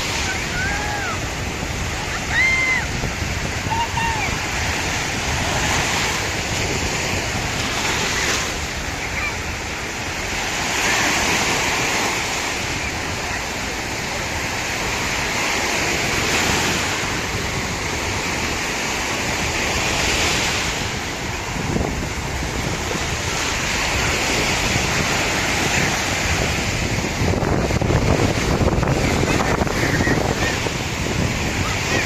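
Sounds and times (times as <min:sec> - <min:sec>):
sea waves breaking: 0:00.0 - 0:32.0
wind buffeting microphone: 0:00.0 - 0:32.0.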